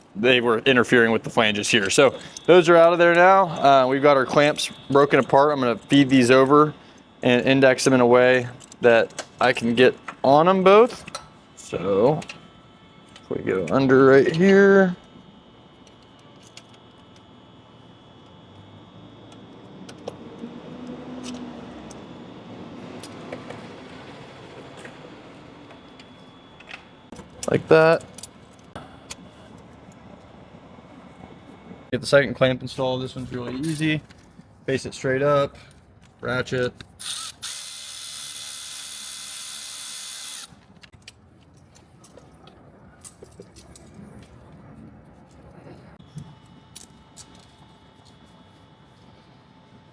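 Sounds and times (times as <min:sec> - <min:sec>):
electric ratchet running: 0:37.0 - 0:40.6.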